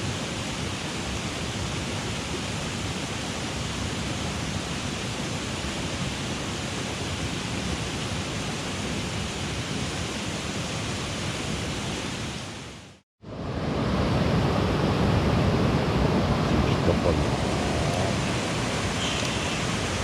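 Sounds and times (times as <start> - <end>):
stream water rushing: 17.0 - 20.0.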